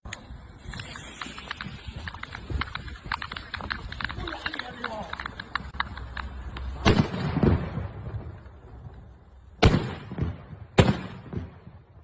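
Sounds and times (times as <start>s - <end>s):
firecracker bangs with echo: 6.8s - 8.4s, 9.6s - 11.9s.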